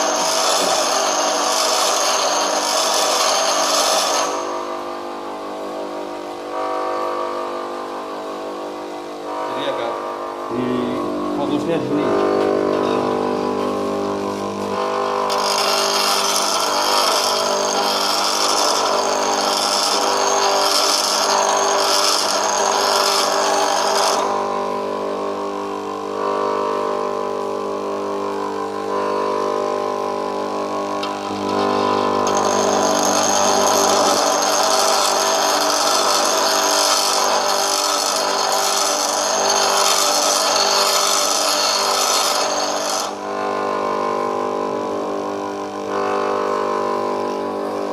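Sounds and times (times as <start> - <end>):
hissing grind of tool bit: 0.0 - 4.6, 14.7 - 24.4, 31.0 - 43.2
grinder motor humming: 0.0 - 47.9.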